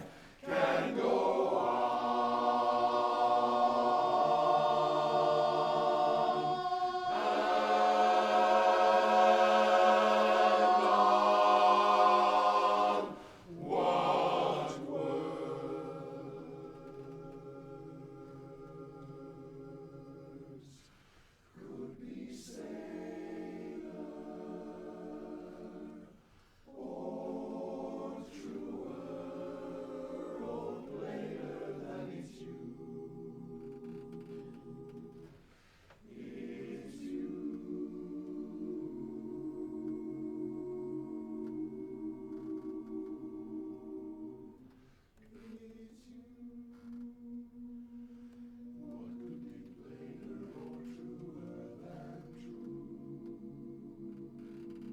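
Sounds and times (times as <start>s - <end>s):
male chorus singing a cappella: 0.0s - 54.9s.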